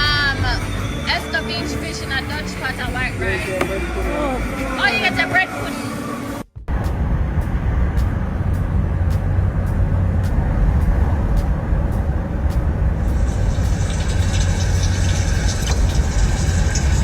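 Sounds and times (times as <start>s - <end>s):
road noise: 0.0s - 17.0s
car engine rumble: 6.4s - 17.0s.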